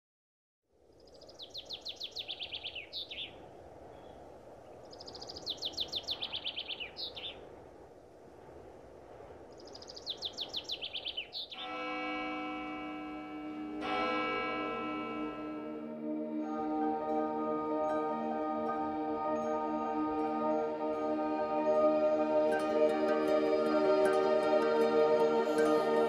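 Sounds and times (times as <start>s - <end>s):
outdoor ambience hiss: 0.7s - 26.0s
songbird descending trill: 9.8s - 26.0s
sustained ambient music: 11.6s - 26.0s.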